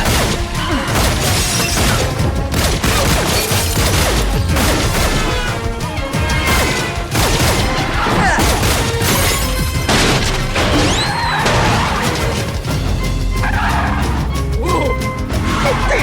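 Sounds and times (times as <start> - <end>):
crashes and metal impacts: 0.0 - 16.0
dramatic score music: 0.0 - 16.0.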